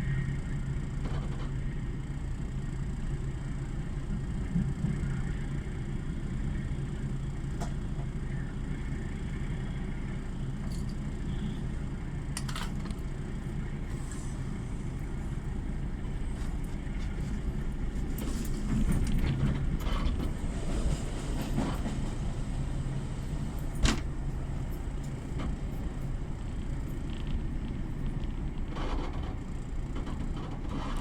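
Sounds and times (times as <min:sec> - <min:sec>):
train rumbling: 0:00.0 - 0:31.0
creaks and clicks: 0:27.0 - 0:31.0.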